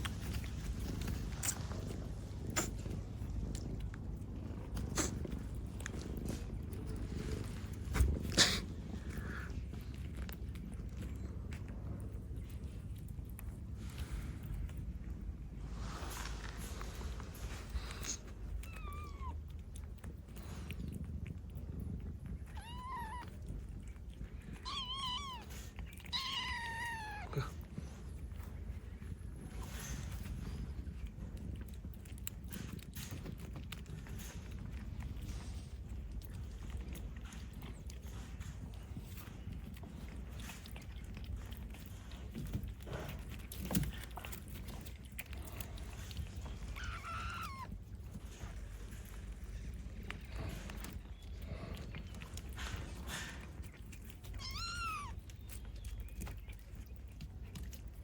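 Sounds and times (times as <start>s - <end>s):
cat purring: 0.0s - 58.0s
cat meowing: 18.6s - 19.4s, 22.4s - 23.5s, 24.5s - 27.6s, 46.7s - 47.8s, 54.3s - 55.2s.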